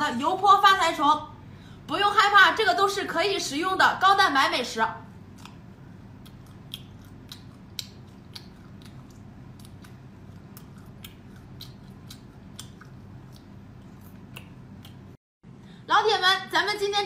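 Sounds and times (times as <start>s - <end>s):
low steady hum: 0.0s - 17.0s
crunchy chewing clicks: 5.2s - 15.2s.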